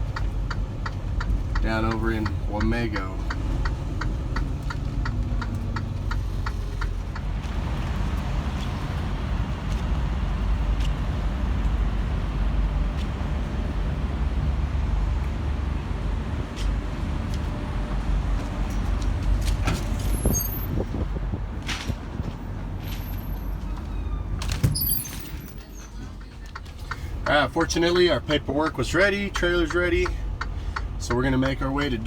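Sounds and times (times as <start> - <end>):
turn signal ticking: 0.0 - 14.5, 26.0 - 32.0
truck diesel engine running: 0.0 - 20.1, 25.4 - 32.0.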